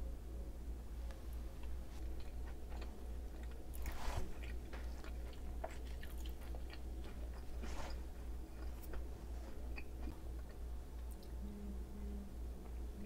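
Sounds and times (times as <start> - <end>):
chewing with crunches: 1.6 - 11.3.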